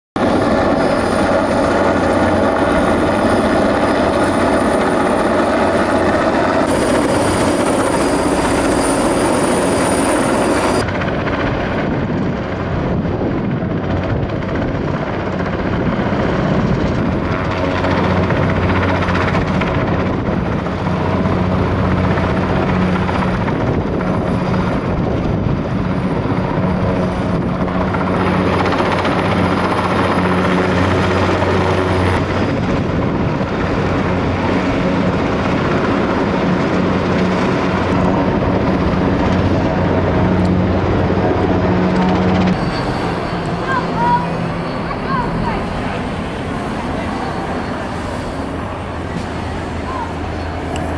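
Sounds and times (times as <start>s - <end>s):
helicopter rotor and engine: 0.2s - 50.9s.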